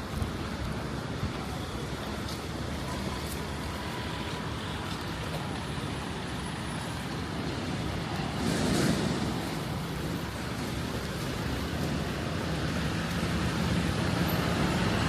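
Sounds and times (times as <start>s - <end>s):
traffic on wet road: 0.0s - 15.0s
vehicle passing close: 8.2s - 15.0s.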